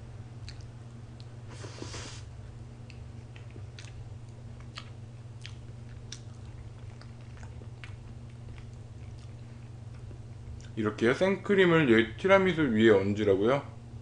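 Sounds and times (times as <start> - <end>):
person chewing: 0.4 - 2.2, 2.8 - 10.8.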